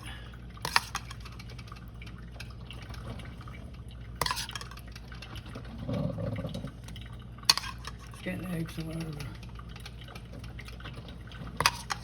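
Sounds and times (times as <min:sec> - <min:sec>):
liquid dripping: 0:00.0 - 0:12.0
kitchenware clink: 0:07.5 - 0:08.2.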